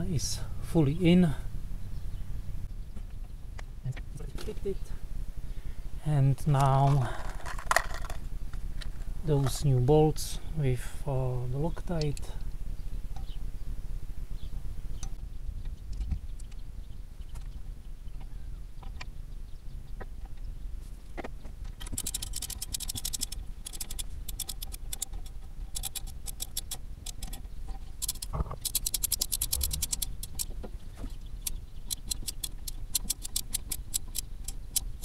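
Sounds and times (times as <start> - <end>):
ratchet wrench clicking: 21.8 - 27.4, 28.0 - 30.5, 31.4 - 35.0.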